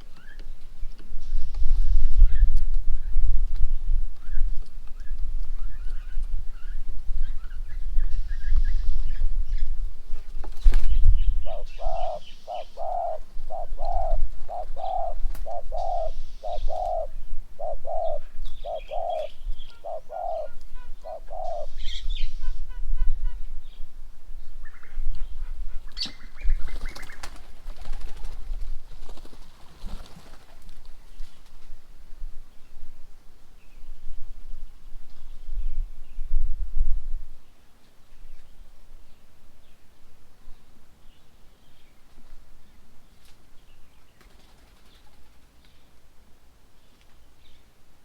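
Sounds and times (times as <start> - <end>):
small birds chirping: 0.0 - 22.7, 23.4 - 31.8
bird hooting: 11.4 - 22.6.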